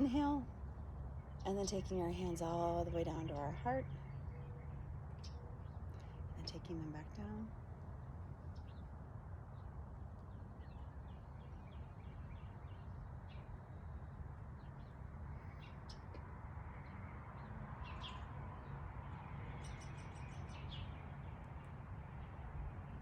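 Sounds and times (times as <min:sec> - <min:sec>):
low background rumble: 0:00.0 - 0:23.0
songbirds chirping and singing: 0:09.5 - 0:23.0.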